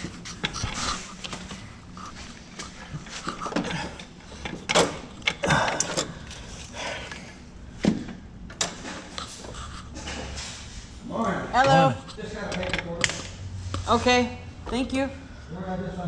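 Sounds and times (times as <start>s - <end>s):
metal tools knocking and clanking: 3.0s - 6.4s, 11.6s - 13.3s.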